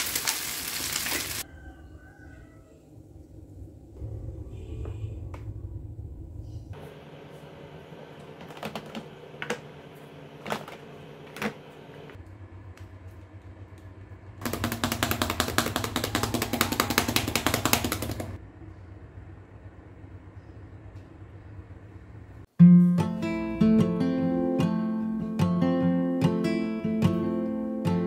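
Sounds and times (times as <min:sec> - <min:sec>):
rice sizzling in a wok: 0:00.0 - 0:01.4.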